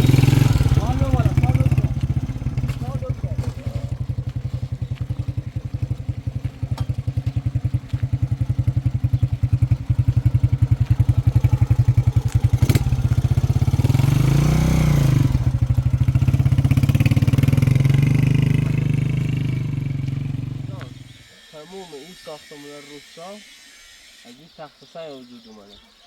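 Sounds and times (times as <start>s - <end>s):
motorcycle engine chugging and revving: 0.0s - 22.6s.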